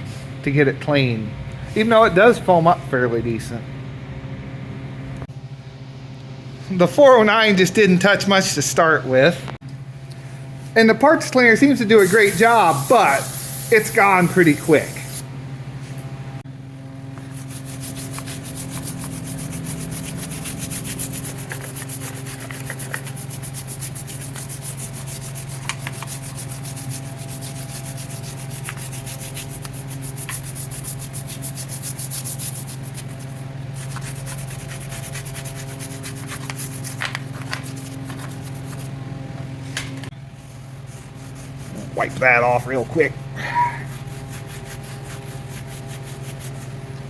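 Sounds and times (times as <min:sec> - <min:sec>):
steady low hum: 0:00.0 - 0:47.0
brush scrubbing greasy metal: 0:11.9 - 0:15.2, 0:17.3 - 0:38.9, 0:40.4 - 0:43.0, 0:43.8 - 0:46.8.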